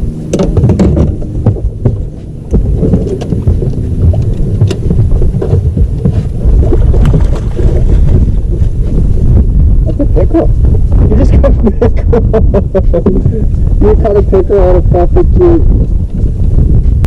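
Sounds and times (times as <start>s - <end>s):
wind buffeting microphone: 0.0s - 17.0s
handling knocks and clicks in boat: 0.2s - 9.2s.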